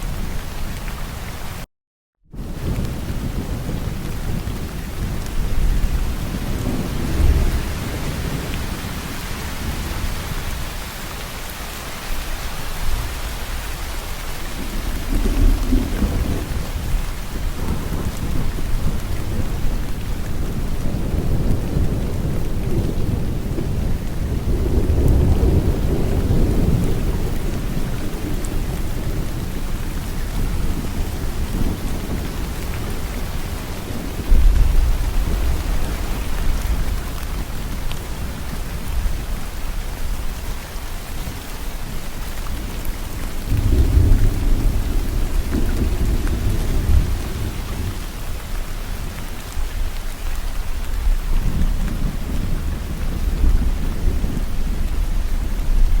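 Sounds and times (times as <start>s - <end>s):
heavy rain: 0.0s - 1.7s, 2.3s - 56.0s
thunder rumbling: 2.3s - 56.0s.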